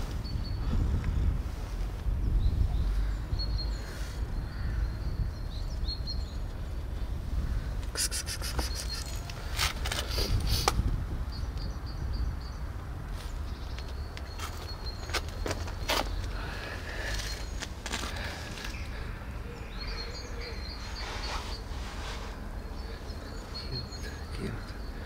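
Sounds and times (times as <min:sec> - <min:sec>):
small birds chirping: 0:00.0 - 0:25.0
sharp clicks and rustles: 0:08.4 - 0:10.9.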